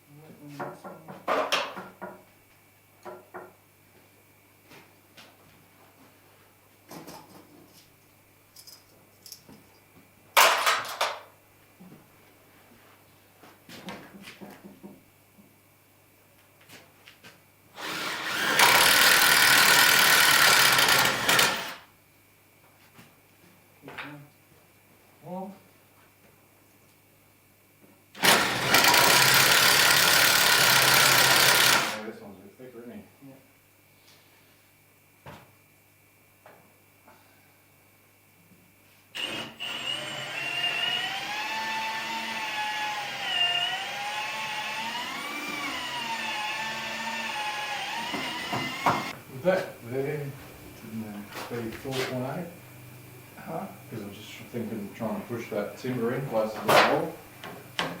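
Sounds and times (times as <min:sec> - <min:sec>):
power drill running: 0:17.8 - 0:21.9, 0:28.2 - 0:32.0, 0:39.2 - 0:49.2.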